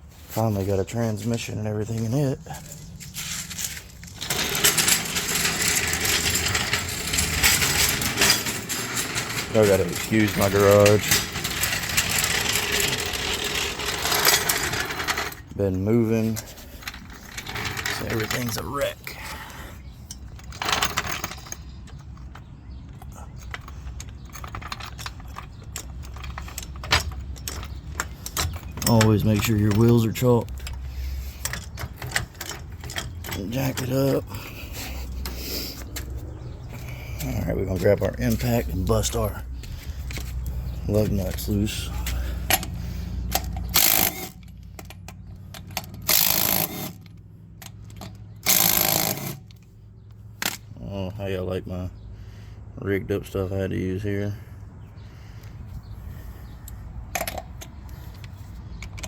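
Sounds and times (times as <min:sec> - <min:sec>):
scraping rustle: 0:00.0 - 0:19.6
metal tools clinking and rattling: 0:00.3 - 0:49.7, 0:55.9 - 0:59.0.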